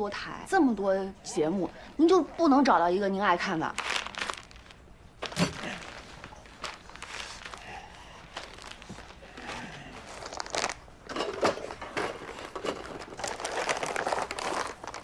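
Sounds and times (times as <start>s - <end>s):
rustling and crinkling: 3.5s - 15.0s.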